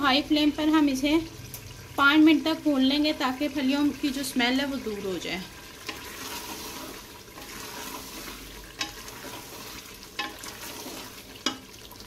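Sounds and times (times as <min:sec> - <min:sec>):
curry sizzling in oil: 0:00.0 - 0:12.0
spoon knocking against pot: 0:10.2 - 0:10.5, 0:11.4 - 0:11.7.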